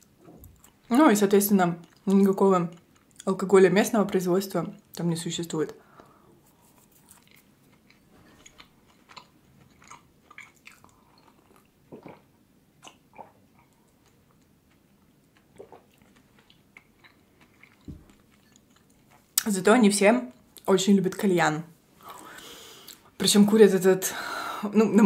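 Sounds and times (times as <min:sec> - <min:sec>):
chewing and mouth sounds: 0:01.8 - 0:03.3, 0:06.5 - 0:19.5
wet mouth clicks: 0:15.6 - 0:15.9.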